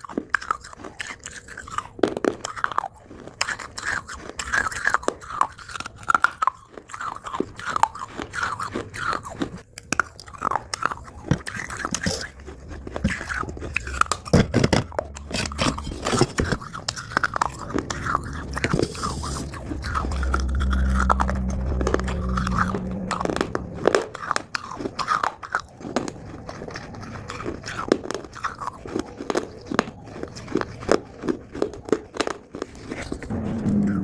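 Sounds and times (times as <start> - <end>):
crunching chewing of dry clay: 0.0 - 33.4
low hum: 13.7 - 26.5, 33.2 - 34.0.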